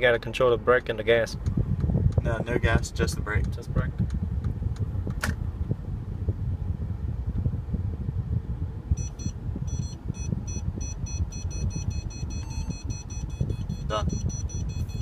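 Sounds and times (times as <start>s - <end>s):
car low rumble: 0.0s - 15.0s
parking sensor beeps: 8.9s - 15.0s.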